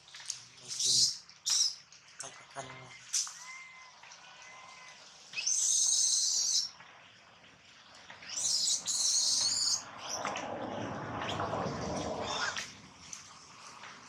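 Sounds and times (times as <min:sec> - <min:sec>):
monkey screeching: 0:08.3 - 0:09.8, 0:12.2 - 0:12.6.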